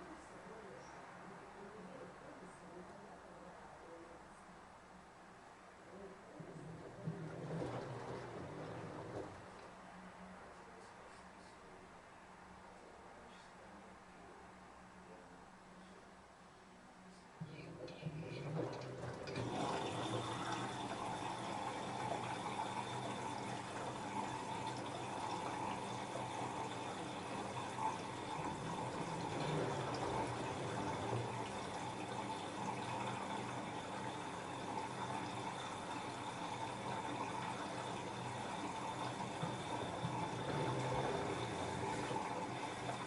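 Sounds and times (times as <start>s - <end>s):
water rushing into washing machine: 6.4s - 9.7s, 17.4s - 43.0s.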